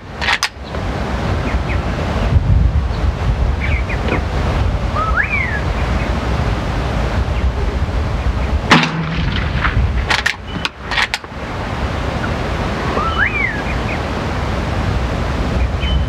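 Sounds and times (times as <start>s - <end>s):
wind noise: 0.0s - 16.0s
rifle action metallic clicks: 0.2s - 0.6s, 10.1s - 11.3s
rifle shot: 8.7s - 11.1s
bird chirp: 10.4s - 10.8s, 13.0s - 14.0s, 15.6s - 16.0s.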